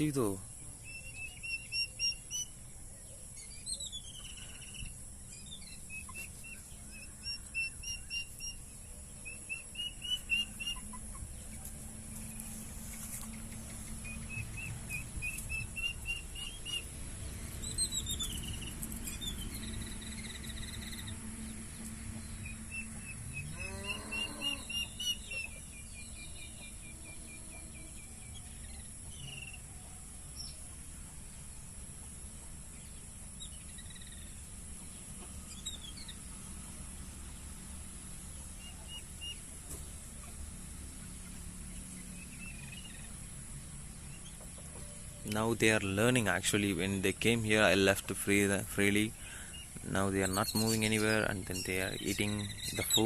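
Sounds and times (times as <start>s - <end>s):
high insect drone: 0.0s - 30.2s
birds chirping: 0.0s - 53.0s
low throaty bird call: 12.9s - 30.6s, 47.2s - 53.0s.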